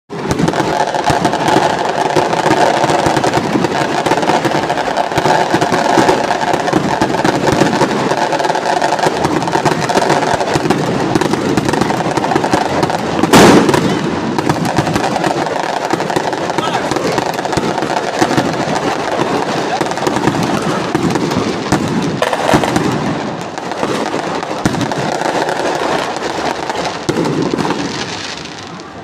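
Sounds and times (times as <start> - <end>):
bonfire crackling and popping: 0.1 - 29.0
loud bang: 13.2 - 15.0.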